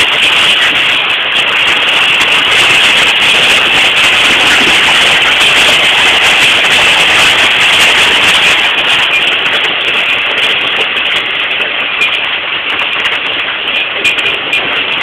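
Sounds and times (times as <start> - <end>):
hail ticking: 0.0 - 15.0
heavy rain: 0.0 - 15.0.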